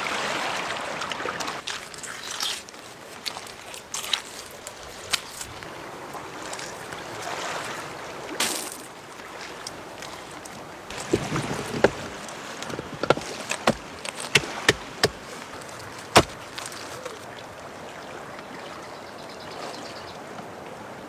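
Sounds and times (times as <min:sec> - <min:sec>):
sharp irregular knocks and clicks: 0:10.9 - 0:15.2.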